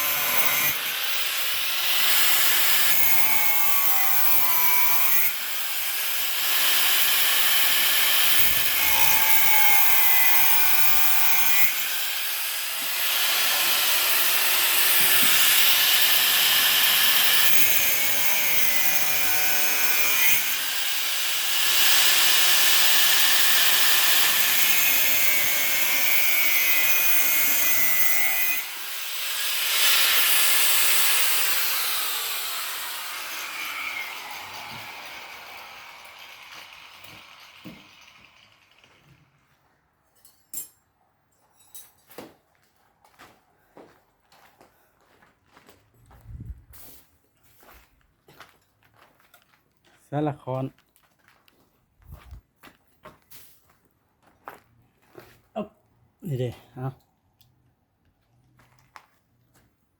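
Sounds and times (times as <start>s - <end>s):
tool rasping on building material: 0.0s - 39.2s.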